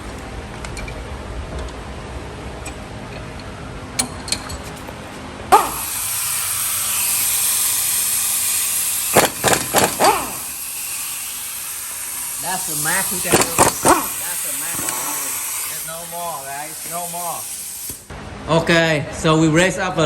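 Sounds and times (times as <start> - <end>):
air tool hissing: 5.5 - 18.1
air tool short loud bursts: 5.5 - 18.1.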